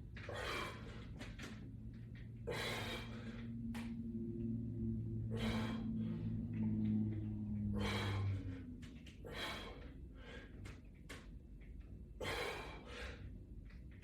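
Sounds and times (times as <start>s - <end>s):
person breathing hard: 0.2s - 1.2s, 2.4s - 3.7s, 5.2s - 6.6s, 7.6s - 10.8s, 12.2s - 13.4s.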